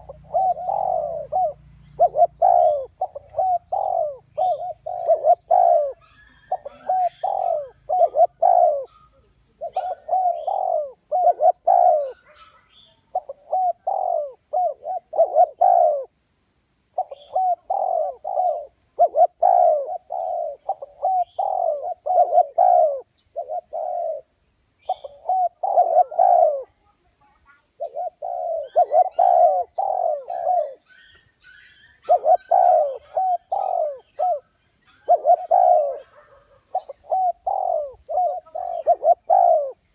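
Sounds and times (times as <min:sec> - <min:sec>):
dove cooing: 0:00.0 - 0:16.2, 0:16.9 - 0:39.9
small birds chirping: 0:00.0 - 0:16.2, 0:16.9 - 0:39.9.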